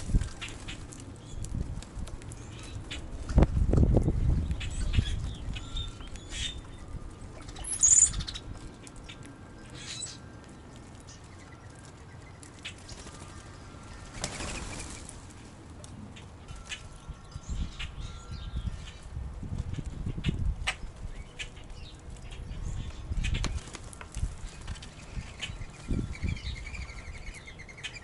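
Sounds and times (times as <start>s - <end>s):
bird wings flapping: 11.8s - 15.4s, 23.3s - 25.0s.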